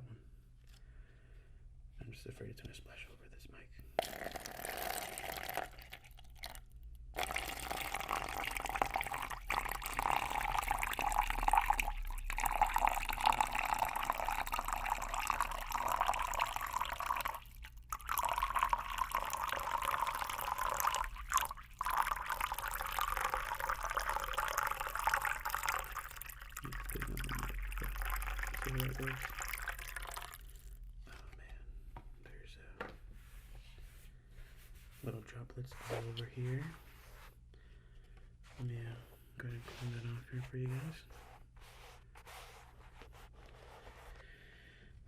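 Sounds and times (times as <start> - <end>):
water pouring from bottle: 4.0 - 30.8.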